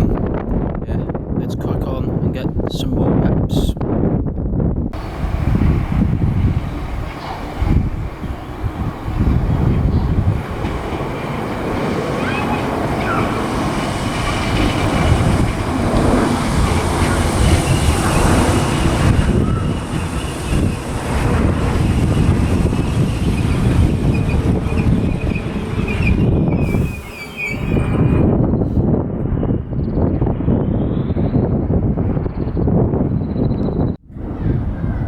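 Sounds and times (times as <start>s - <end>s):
electric train rumbling: 4.5s - 35.0s
wheels squealing: 5.0s - 28.8s.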